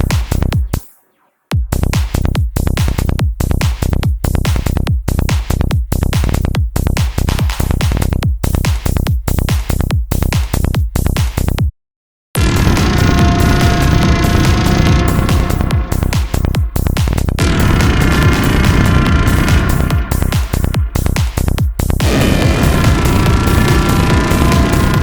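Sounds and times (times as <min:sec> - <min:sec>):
deep synth bass: 0:00.0 - 0:00.8, 0:12.4 - 0:25.0
repeating synth hit with filter sweep: 0:12.4 - 0:25.0.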